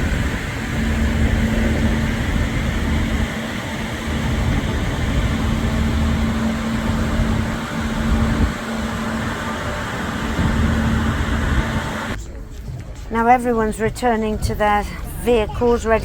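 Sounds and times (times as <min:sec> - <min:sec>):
ship engines droning: 0:00.0 - 0:12.2.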